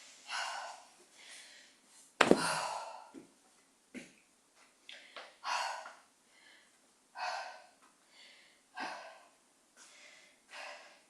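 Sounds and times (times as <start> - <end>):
woman breathing hard: 0.2 - 1.8, 2.4 - 3.2, 4.9 - 11.0.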